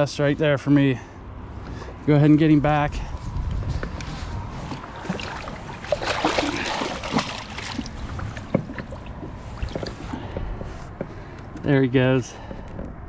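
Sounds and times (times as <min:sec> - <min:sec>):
low wind rumble: 0:00.0 - 0:13.0
water splashing against boat: 0:04.0 - 0:11.4
knocks on boat hull: 0:08.4 - 0:11.1.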